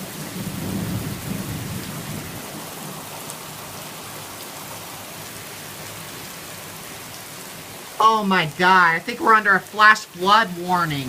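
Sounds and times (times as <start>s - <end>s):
low thunder rumble: 0.0s - 3.1s
heavy rain and hail: 0.0s - 11.0s.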